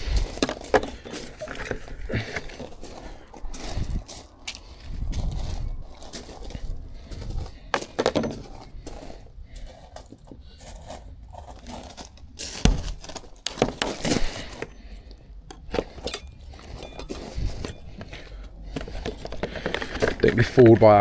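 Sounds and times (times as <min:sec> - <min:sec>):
tool prising window beads: 0:12.1 - 0:20.3.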